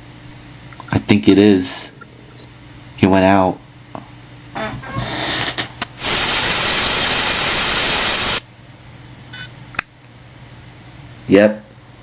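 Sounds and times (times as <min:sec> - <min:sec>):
static-like hissing burst: 0:05.0 - 0:08.5.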